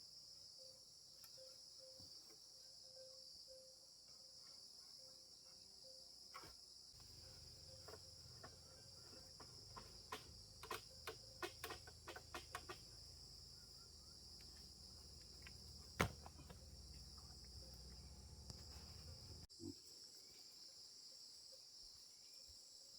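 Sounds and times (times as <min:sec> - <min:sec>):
insect chorus: 0:00.0 - 0:22.9.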